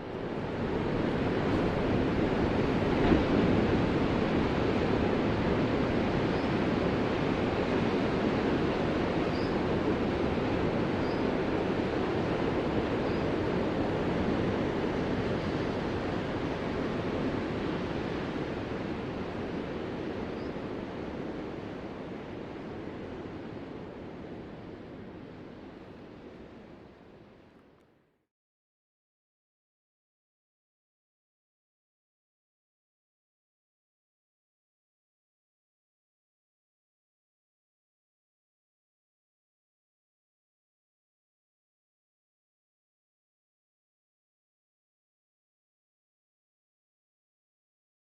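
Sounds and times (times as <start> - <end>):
waves breaking: 0.1 - 20.2.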